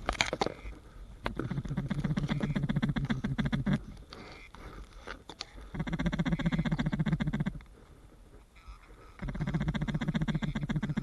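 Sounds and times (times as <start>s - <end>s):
rapid duck-like quacking: 1.4s - 4.5s, 5.7s - 7.6s, 8.6s - 11.0s.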